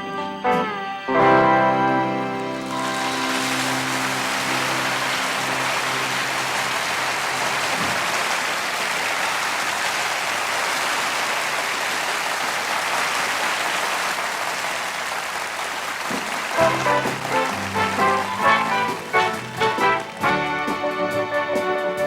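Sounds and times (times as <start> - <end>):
band playing song: 0.0 - 8.8, 16.0 - 22.0
audience applauding: 1.7 - 22.0
band's held chord: 16.6 - 22.0.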